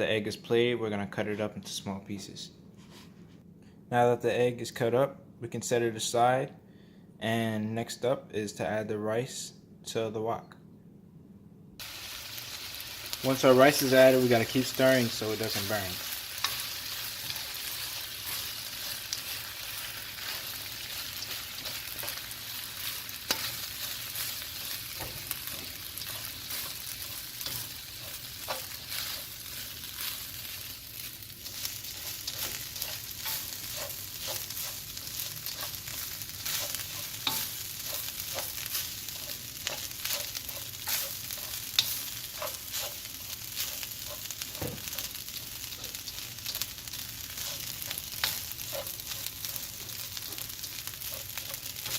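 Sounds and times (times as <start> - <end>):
rice sizzling in a wok: 11.8 - 51.9.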